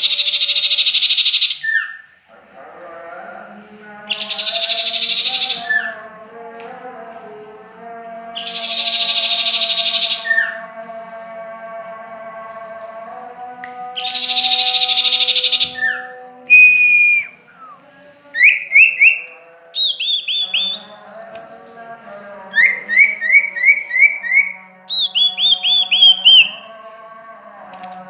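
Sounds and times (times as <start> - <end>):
songbird singing: 0.0 - 2.2, 3.9 - 6.2, 7.6 - 11.4, 13.7 - 27.0.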